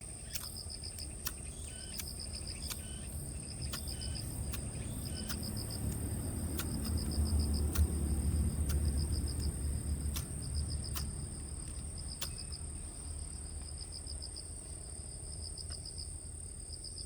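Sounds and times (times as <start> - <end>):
crickets chirping: 0.0 - 17.0
high insect whine: 0.0 - 17.0
sharp clicks: 0.3 - 12.6
low rumble: 3.3 - 13.7.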